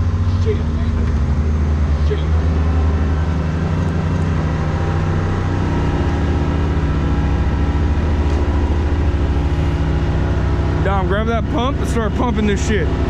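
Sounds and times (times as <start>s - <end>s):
boat motor running: 0.0s - 13.0s.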